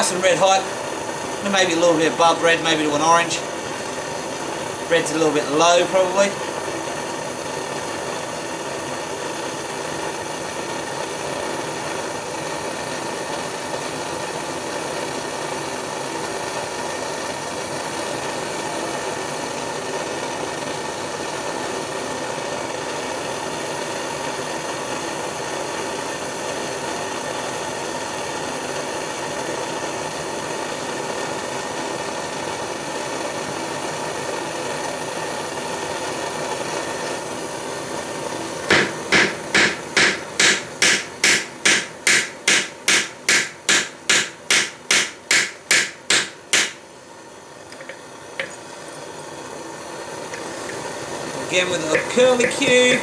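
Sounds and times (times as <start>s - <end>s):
propane torch roaring: 0.0s - 53.0s
hammer blows on hot steel: 38.7s - 46.9s, 51.4s - 53.0s.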